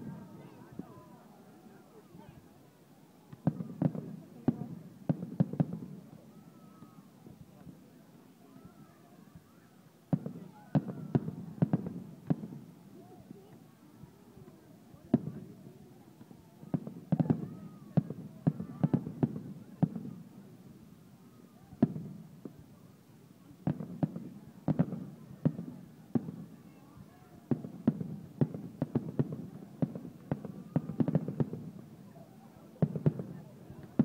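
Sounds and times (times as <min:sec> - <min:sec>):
fireworks bursting bangs: 0:03.4 - 0:06.0, 0:10.1 - 0:12.7, 0:15.0 - 0:15.4, 0:16.2 - 0:20.2, 0:21.7 - 0:22.6, 0:23.6 - 0:26.6, 0:27.4 - 0:32.0, 0:32.8 - 0:34.0.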